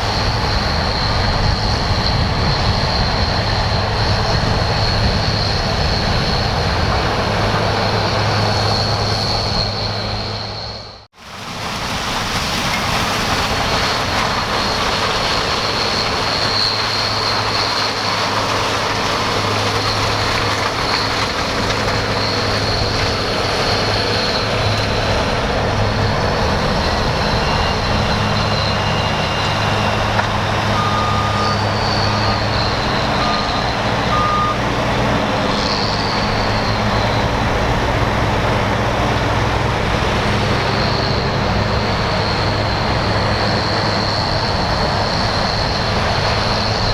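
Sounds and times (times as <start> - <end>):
diesel machinery running: 0.0 - 46.9
short beeps: 30.8 - 31.7, 33.2 - 34.6.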